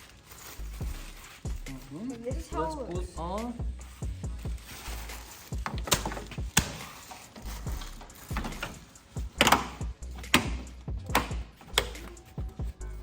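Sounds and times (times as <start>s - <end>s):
parts knocking and clicking: 5.6s - 12.4s.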